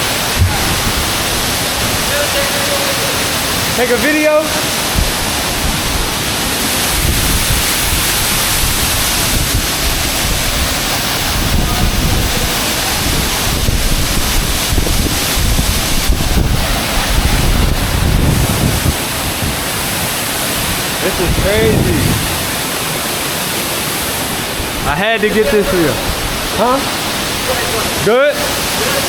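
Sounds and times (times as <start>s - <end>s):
wind buffeting microphone: 0.0s - 2.2s, 4.7s - 26.6s
waterfall rushing: 0.0s - 29.0s.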